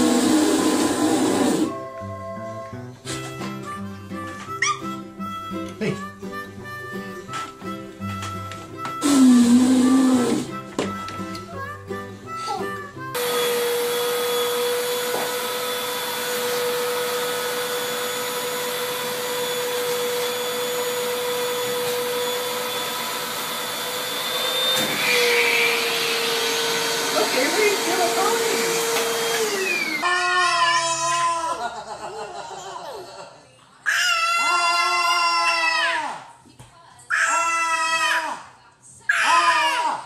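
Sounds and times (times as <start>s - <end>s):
vacuum cleaner running: 0.0s - 1.9s, 8.9s - 11.2s, 13.1s - 30.2s.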